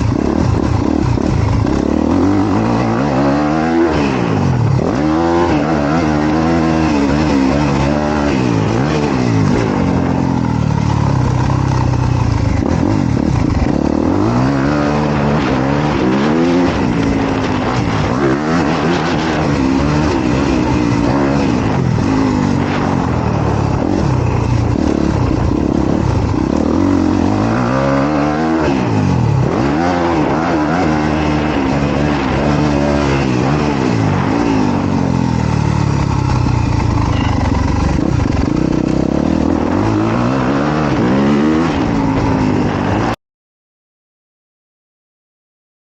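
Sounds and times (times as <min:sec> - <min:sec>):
dirt bike engine revving: 0:00.0 - 0:43.2.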